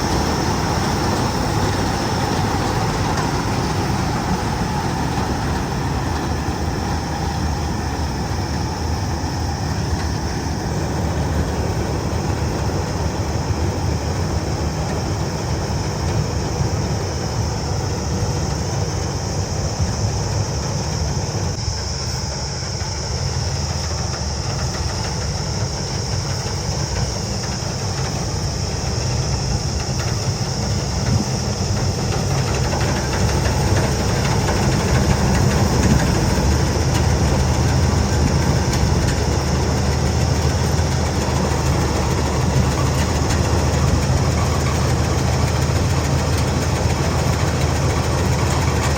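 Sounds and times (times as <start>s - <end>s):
combine harvester engine running: 0.0s - 48.9s
high whine: 0.0s - 48.9s.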